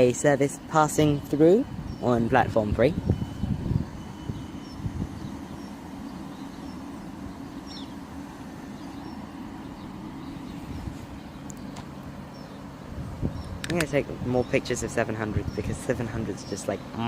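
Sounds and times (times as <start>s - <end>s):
electric train humming: 0.0s - 17.0s
faint bird chirps: 3.0s - 13.6s.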